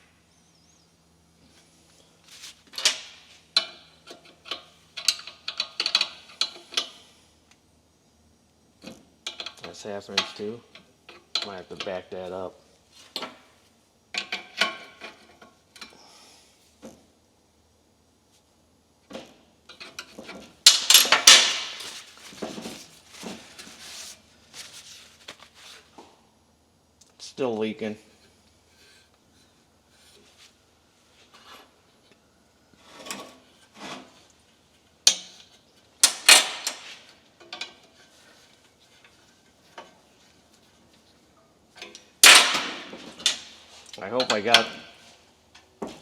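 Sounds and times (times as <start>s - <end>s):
wrenches clinking on metal fitting: 3.6s - 7.0s, 43.2s - 45.0s.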